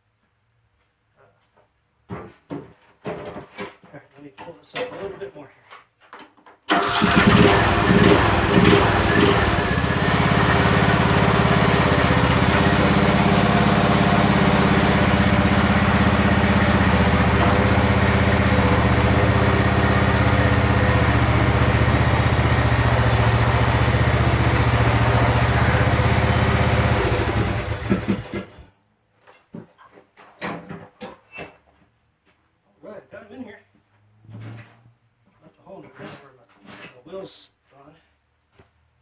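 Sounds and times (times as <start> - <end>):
riding lawn mower engine running: 6.7 - 28.6.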